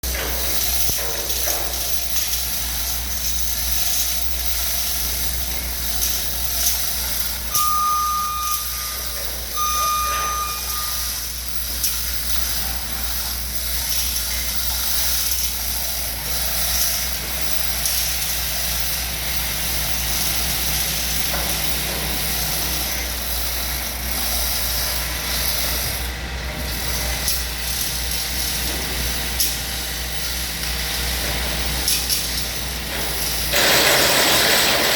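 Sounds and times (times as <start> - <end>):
machinery rumble and hiss: 0.0 - 34.9
electronic warning beeps: 7.4 - 11.7.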